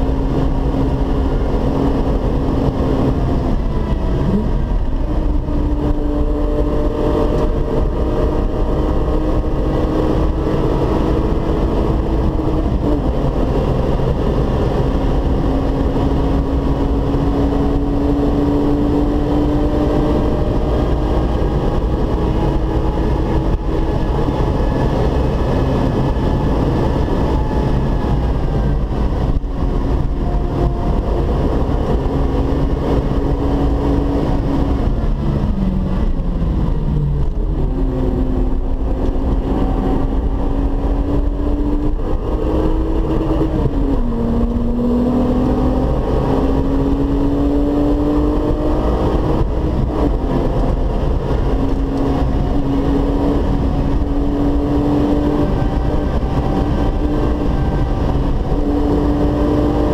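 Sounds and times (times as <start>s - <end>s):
car engine pulling hard: 0.0s - 59.9s
wind and tyre noise: 0.0s - 59.9s.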